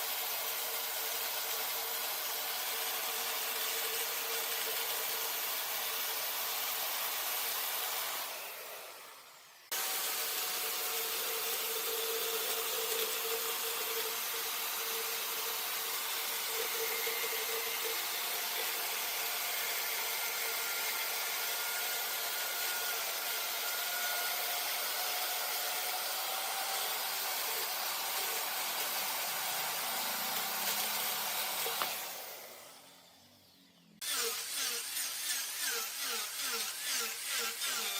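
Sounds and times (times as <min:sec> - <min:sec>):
lathe tool hissing on wood: 0:07.1 - 0:32.8.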